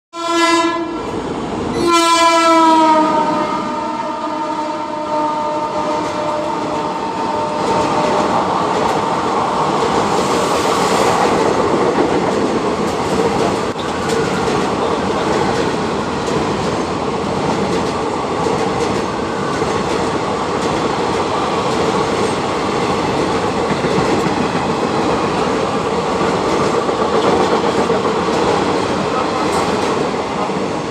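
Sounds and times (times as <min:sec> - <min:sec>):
train horn blasts: 0:00.1 - 0:08.3
train coaches rumbling past: 0:00.2 - 0:30.9
wheels clacking over rail joints: 0:11.6 - 0:30.6.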